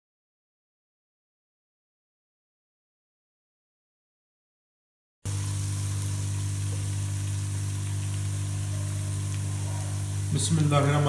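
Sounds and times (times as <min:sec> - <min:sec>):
paste sizzling in hot oil: 0:05.3 - 0:11.0.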